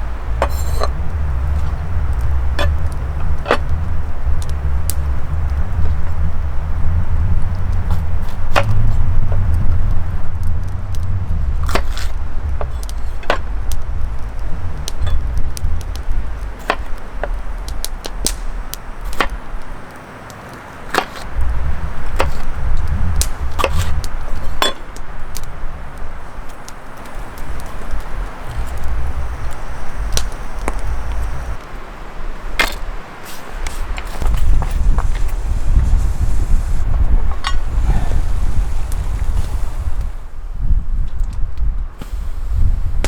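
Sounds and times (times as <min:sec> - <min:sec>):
sharp clicks and knocks: 0:00.0 - 0:20.0
wind gusting against microphone: 0:00.0 - 0:43.0.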